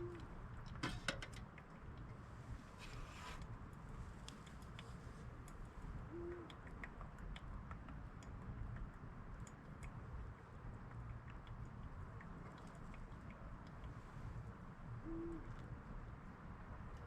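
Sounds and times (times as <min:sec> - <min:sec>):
small ticks and clicks: 0:03.7 - 0:14.0.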